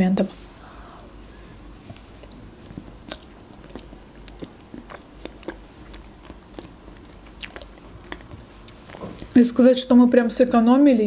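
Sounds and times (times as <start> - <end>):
mouth chewing cake: 1.2 - 9.4.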